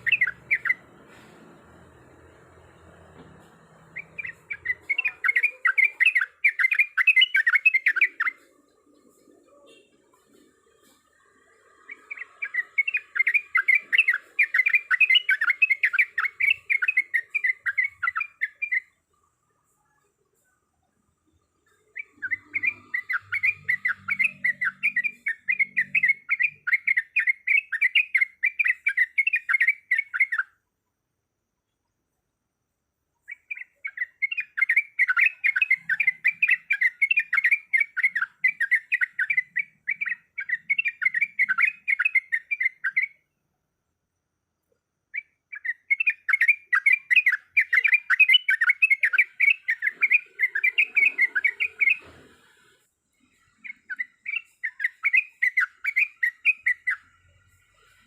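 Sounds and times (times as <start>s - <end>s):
bird chirping rapidly: 0.0s - 1.0s, 3.8s - 10.4s, 11.0s - 19.0s, 21.6s - 30.6s, 33.2s - 43.2s, 45.0s - 52.1s, 53.4s - 58.0s.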